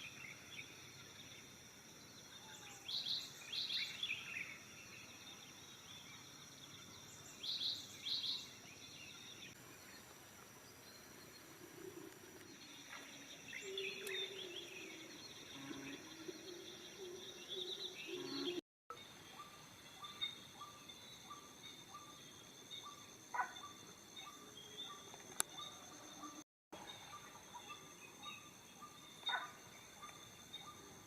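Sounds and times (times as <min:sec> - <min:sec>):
high drone of insects: 0:00.0 - 0:31.0
birds chirping and calling: 0:13.5 - 0:18.6.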